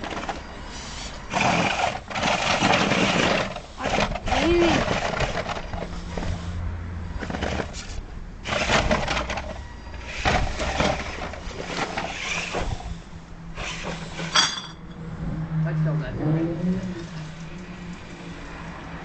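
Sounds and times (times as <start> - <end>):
toy car motor humming: 0.0 - 6.6, 7.2 - 14.4.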